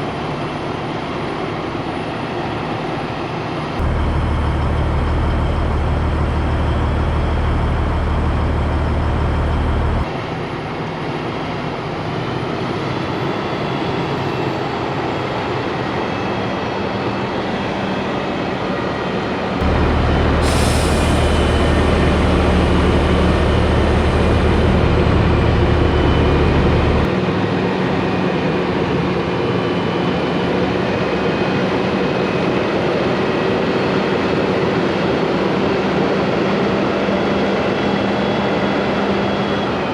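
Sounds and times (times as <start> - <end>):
diesel truck engine: 3.7 - 10.2, 19.6 - 28.9
road noise: 3.8 - 10.2, 19.6 - 28.5.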